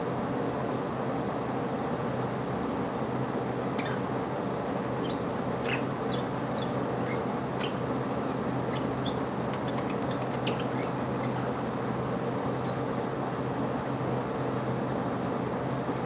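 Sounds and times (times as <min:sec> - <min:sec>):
mechanical hum and whir: 0:00.0 - 0:16.0
faint high bird chirps: 0:03.8 - 0:04.1, 0:05.0 - 0:11.6, 0:12.6 - 0:12.9.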